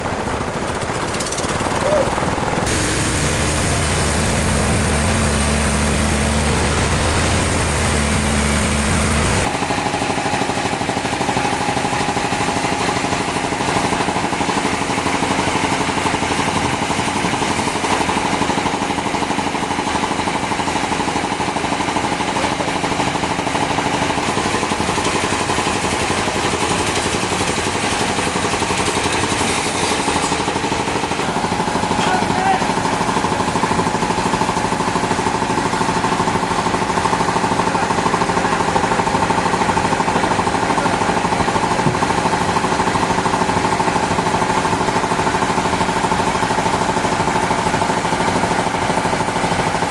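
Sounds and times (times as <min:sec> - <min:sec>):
deep engine-like hum: 0:00.0 - 0:17.0
high steady machine whine: 0:00.0 - 0:49.9
sawmill machinery running: 0:00.0 - 0:49.9.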